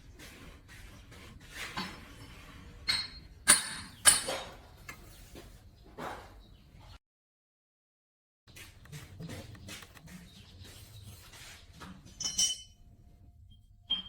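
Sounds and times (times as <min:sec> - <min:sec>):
metallic clinks: 0:12.2 - 0:12.8.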